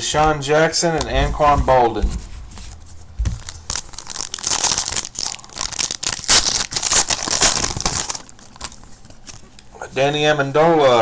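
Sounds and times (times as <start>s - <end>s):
thud: 1.2s - 3.8s
plastic wrapper crinkling and tearing: 2.8s - 9.7s.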